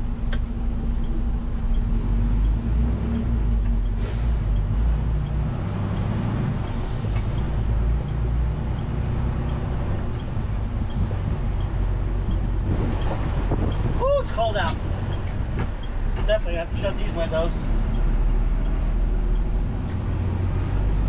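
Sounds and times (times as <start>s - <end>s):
diesel truck engine drone: 0.0s - 21.0s
brief air hiss: 4.0s - 4.5s.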